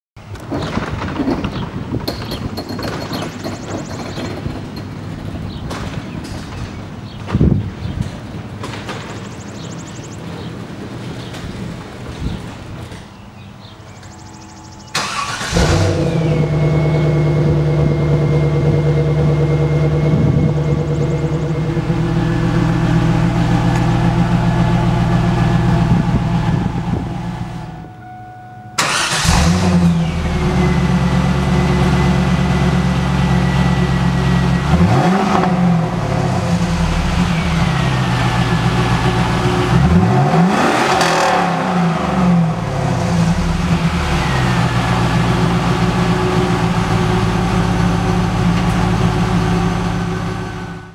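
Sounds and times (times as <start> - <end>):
car engine starting: 14.9 - 28.1, 28.8 - 50.9
car engine revving: 15.0 - 27.8, 28.8 - 50.7
car engine idling: 15.0 - 40.3, 41.6 - 50.9.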